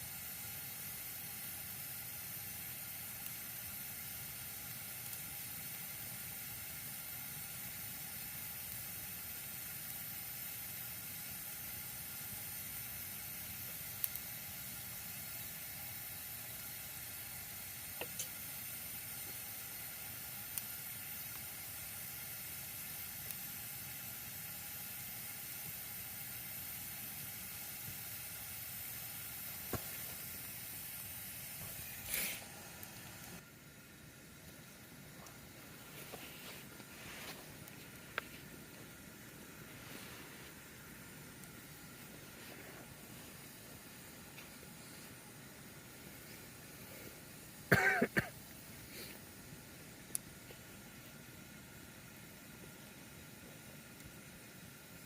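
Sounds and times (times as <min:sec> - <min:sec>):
campfire hissing: 0:00.0 - 0:55.0
fire popping: 0:00.0 - 0:55.0.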